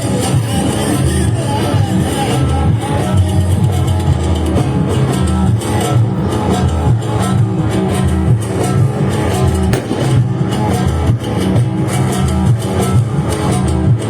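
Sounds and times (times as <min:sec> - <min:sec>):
heavy repeating bass line: 0:09.7 - 0:11.4
steady drum beat: 0:09.8 - 0:11.1.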